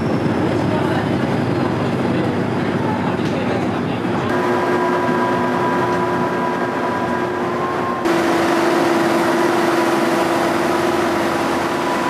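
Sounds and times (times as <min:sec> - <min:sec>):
vehicle running noise: 0:04.2 - 0:12.0.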